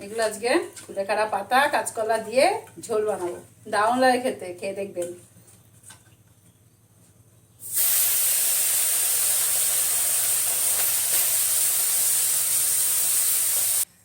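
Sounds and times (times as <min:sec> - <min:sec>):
fish frying in hot oil: 0:07.6 - 0:13.9.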